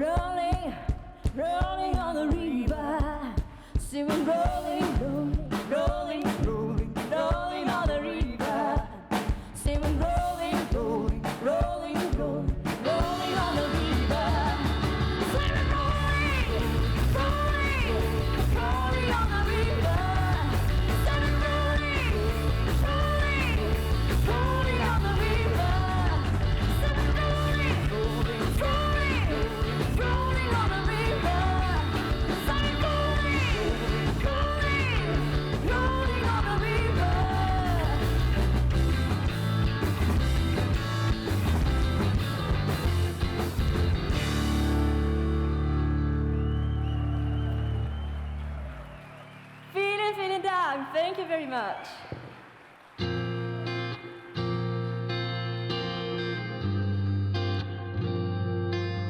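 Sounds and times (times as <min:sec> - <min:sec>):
live rock band: 0:00.0 - 0:49.7, 0:52.8 - 0:59.0
person singing: 0:09.8 - 0:38.3
heavy bass: 0:12.8 - 0:48.8.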